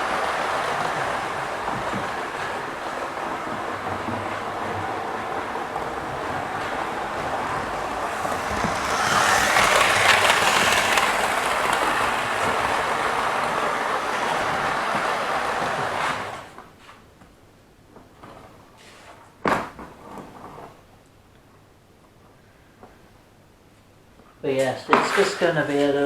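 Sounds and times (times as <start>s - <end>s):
model train rattling along track: 0.0s - 16.5s.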